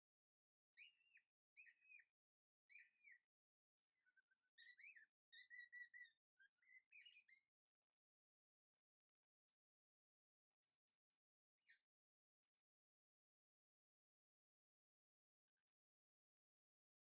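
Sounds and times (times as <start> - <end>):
faint bird chirping: 0.0 - 17.0.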